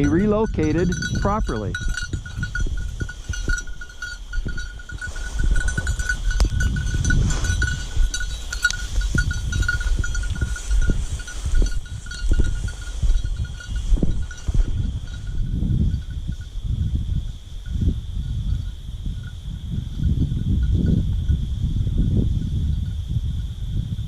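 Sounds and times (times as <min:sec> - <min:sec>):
small collar bell jingling: 0:00.0 - 0:17.0
wind rumbling on microphone: 0:00.0 - 0:24.0.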